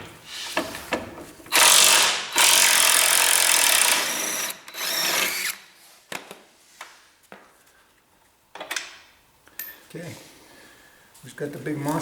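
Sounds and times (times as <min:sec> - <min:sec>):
power tool bursts: 0:01.5 - 0:05.6.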